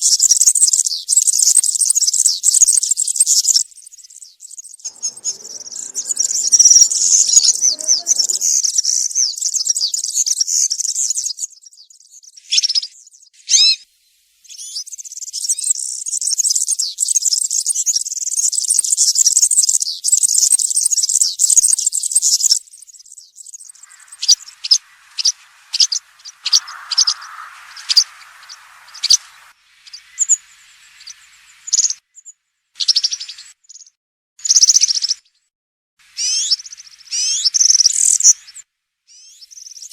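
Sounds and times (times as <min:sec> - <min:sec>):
european serin singing: 0:04.9 - 0:08.6
faint hiss: 0:04.9 - 0:08.7, 0:23.6 - 0:32.0.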